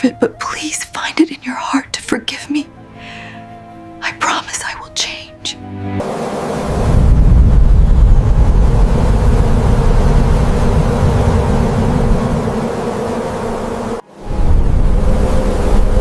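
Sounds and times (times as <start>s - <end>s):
bee swarm buzzing: 5.6s - 16.0s
low rumble: 6.6s - 16.0s.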